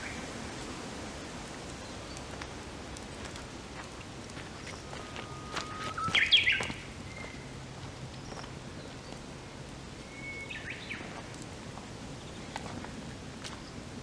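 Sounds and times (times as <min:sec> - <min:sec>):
wood fire crackling: 0:00.0 - 0:14.0
songbird singing: 0:04.5 - 0:09.2, 0:10.0 - 0:11.2.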